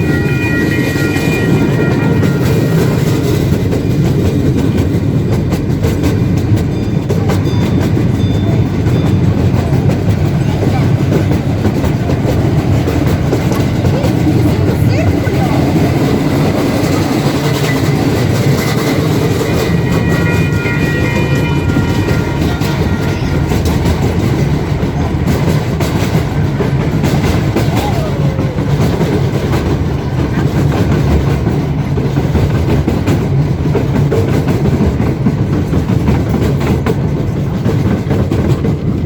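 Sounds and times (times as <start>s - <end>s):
train rumble: 0.0s - 39.0s
wheels clicking over rail joints: 0.0s - 39.0s.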